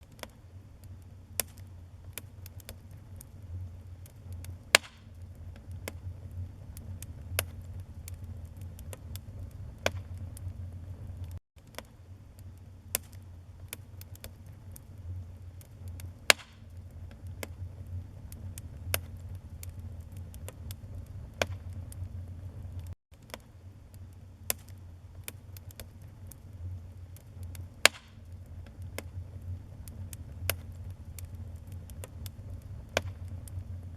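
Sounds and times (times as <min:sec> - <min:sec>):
wood fire crackling and popping: 0:00.0 - 0:33.9
low rumble: 0:02.8 - 0:11.4, 0:14.5 - 0:23.0, 0:25.9 - 0:33.9.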